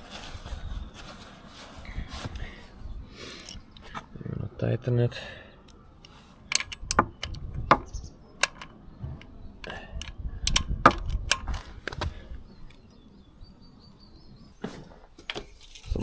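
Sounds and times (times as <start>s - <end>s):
socket wrench clicking: 5.7s - 8.8s, 9.6s - 11.6s.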